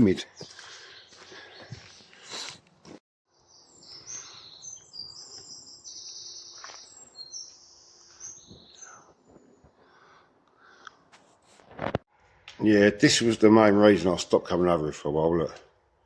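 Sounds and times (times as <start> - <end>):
songbirds chirping and whistling: 0.0 - 2.5, 3.3 - 10.2
brief rustle: 11.1 - 12.0.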